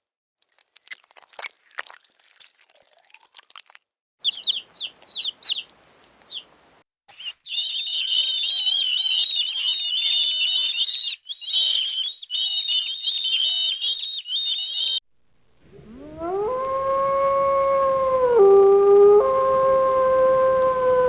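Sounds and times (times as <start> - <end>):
small birds chirping: 4.2 - 15.0
dog howling: 15.8 - 21.0.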